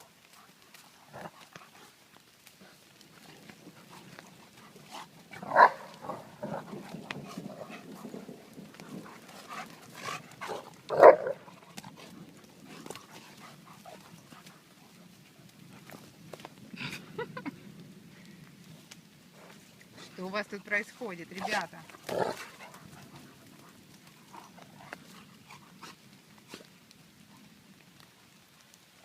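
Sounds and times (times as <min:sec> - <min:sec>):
dogs barking: 0:05.4 - 0:06.3, 0:10.4 - 0:11.5.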